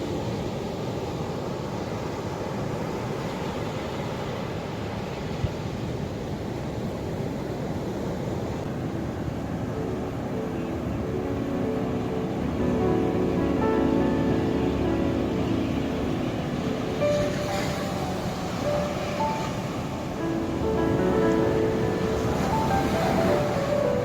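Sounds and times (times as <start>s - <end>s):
ocean waves washing in: 0.0s - 24.0s
music with held notes: 9.7s - 24.0s.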